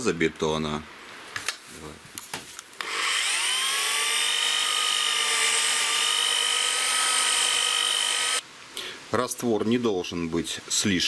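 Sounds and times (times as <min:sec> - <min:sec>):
electric drill mixing mortar: 0:02.8 - 0:08.4.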